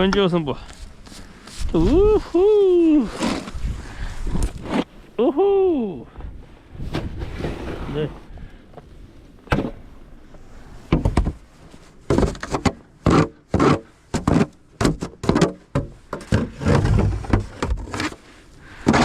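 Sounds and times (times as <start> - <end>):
sharp knocks and thuds: 9.4 - 9.8, 10.9 - 11.4, 12.1 - 17.9.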